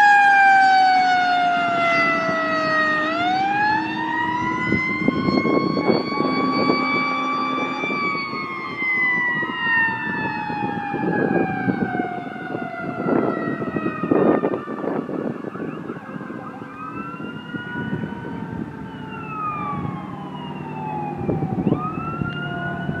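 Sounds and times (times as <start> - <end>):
fire engine siren wailing: 0.0 - 23.0
truck and road rumble: 0.0 - 23.0.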